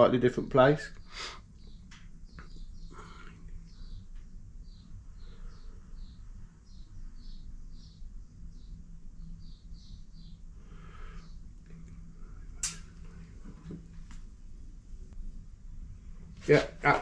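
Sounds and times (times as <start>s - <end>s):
low steady hum: 0.0s - 17.0s
small bird chirping: 0.8s - 12.7s.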